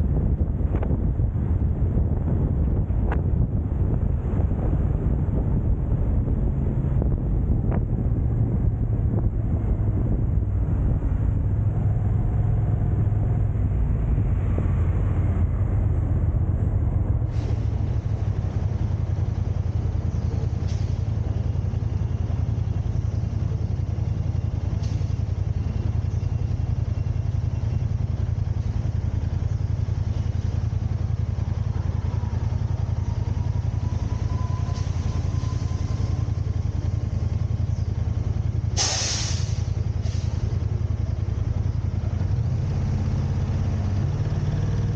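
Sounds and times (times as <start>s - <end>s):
car engine and tyre noise: 0.0s - 44.9s
short sharp hiss: 38.8s - 40.4s.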